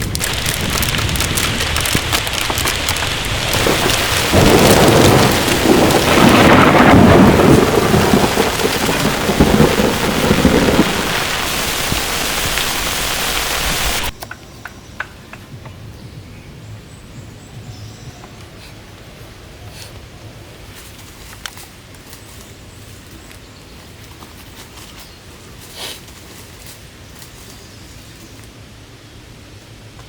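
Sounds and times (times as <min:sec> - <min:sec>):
heavy rain pouring: 0:00.0 - 0:14.2
thunder rumbling: 0:00.0 - 0:14.2.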